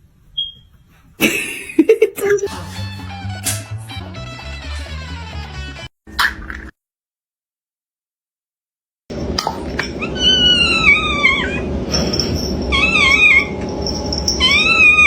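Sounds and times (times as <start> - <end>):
cat meowing loudly: 10.0 - 11.7, 12.7 - 13.6, 14.4 - 15.0.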